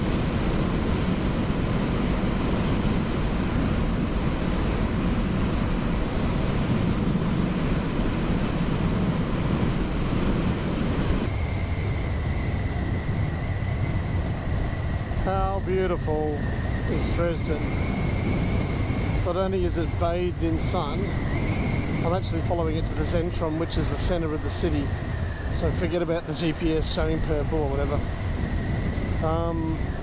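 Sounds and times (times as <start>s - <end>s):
motorcycle engine at speed: 0.0s - 15.6s, 16.4s - 23.6s
faint high whine: 0.0s - 30.0s
wind rushing on microphone: 0.0s - 30.0s.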